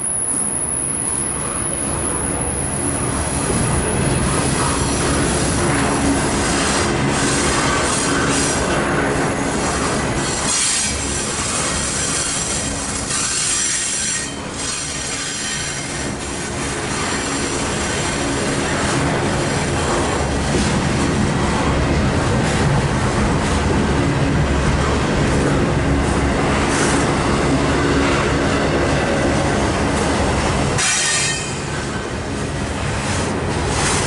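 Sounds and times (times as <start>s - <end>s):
steel wheels rumbling on rail: 0.0s - 34.0s
train clatter: 1.4s - 34.0s
high-pitched wheel squeal: 13.1s - 15.9s, 30.8s - 31.7s.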